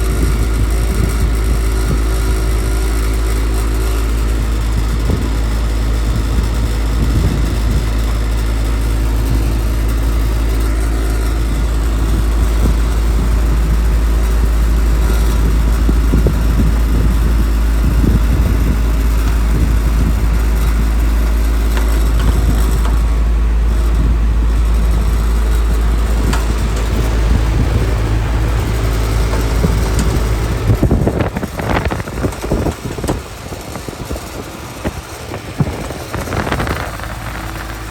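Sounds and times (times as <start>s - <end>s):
air conditioner humming: 22.4s - 37.9s.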